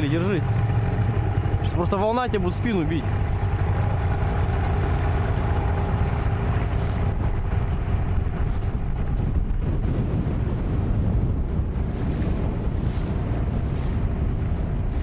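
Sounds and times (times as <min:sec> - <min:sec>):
outboard motor hum: 0:00.0 - 0:15.0
waves slapping against boat: 0:00.0 - 0:15.0
wind buffeting microphone: 0:00.0 - 0:15.0.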